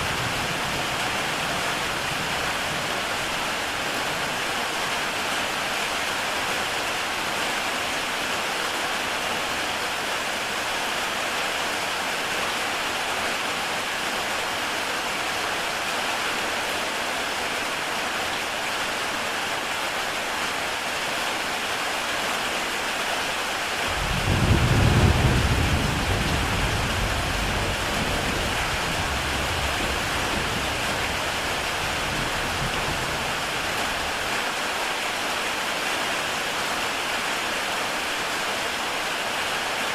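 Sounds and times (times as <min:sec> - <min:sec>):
heavy rain on a tile roof: 0:00.0 - 0:39.9
thunder rumble: 0:23.9 - 0:34.2.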